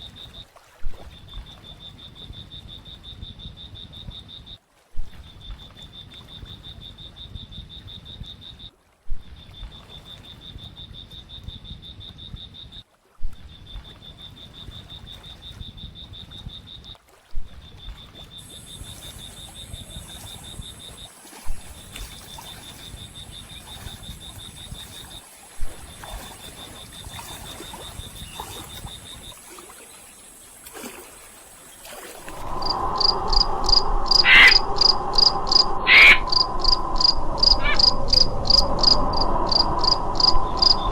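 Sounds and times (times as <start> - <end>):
high trill of frogs: 17.8 - 40.9
higher steady buzz: 32.2 - 40.9
loud pulsing call: 32.4 - 40.9.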